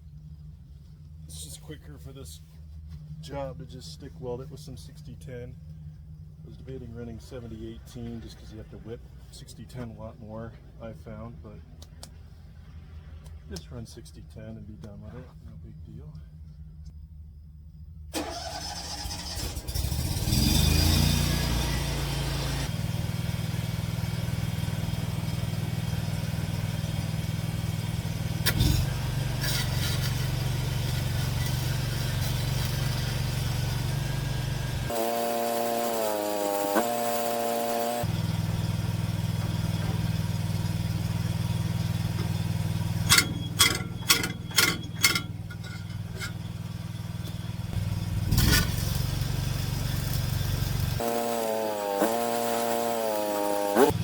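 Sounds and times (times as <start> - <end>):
welder engine droning: 18.2 - 54.0.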